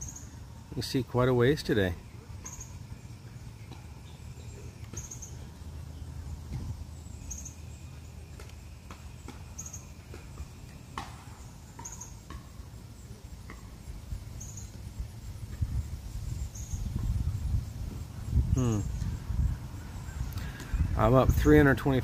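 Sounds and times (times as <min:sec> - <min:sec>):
small bird chirping: 0:00.0 - 0:00.4, 0:01.7 - 0:21.0
low outdoor rumble: 0:00.0 - 0:22.0.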